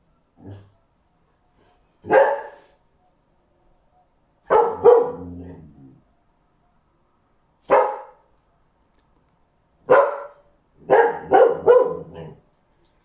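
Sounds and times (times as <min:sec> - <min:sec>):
dog barking: 0:02.0 - 0:02.7, 0:04.5 - 0:05.5, 0:07.7 - 0:08.3, 0:09.8 - 0:12.4.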